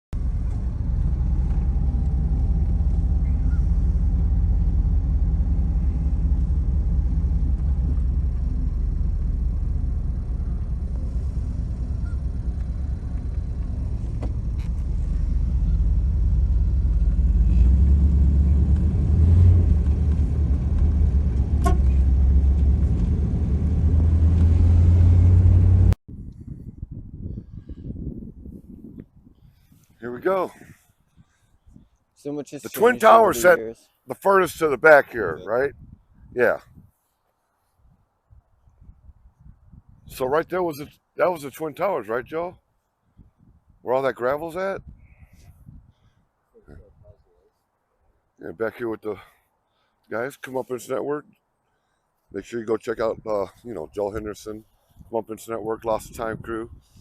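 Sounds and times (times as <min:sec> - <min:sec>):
car rumbling on the move: 0:00.1 - 0:26.0.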